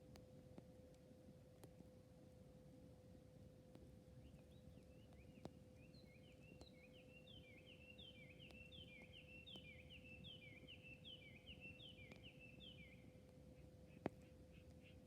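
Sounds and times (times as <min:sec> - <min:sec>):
faint steady hum: 0:00.0 - 0:15.0
bird chirping: 0:04.2 - 0:15.0.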